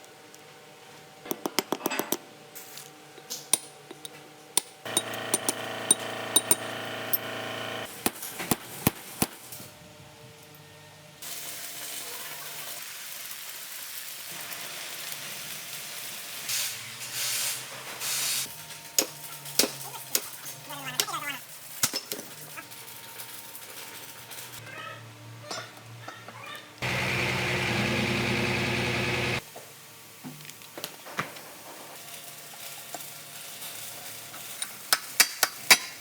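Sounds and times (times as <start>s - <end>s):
machine hum: 4.9s - 7.9s, 26.8s - 29.4s.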